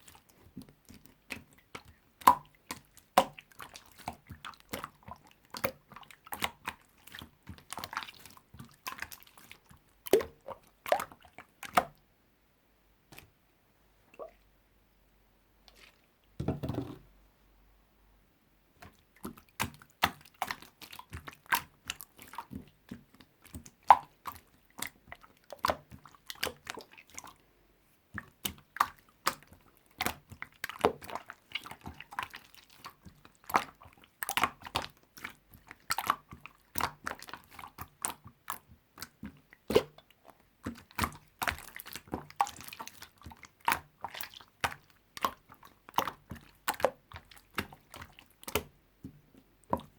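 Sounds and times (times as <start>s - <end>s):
slime squeezed by hand: 39.7s - 40.0s.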